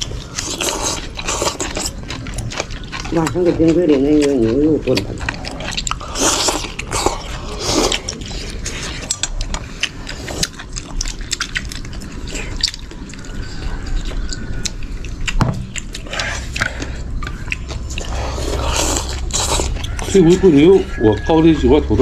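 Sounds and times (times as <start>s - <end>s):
wet liquid sounds of soup: 0.0s - 22.0s.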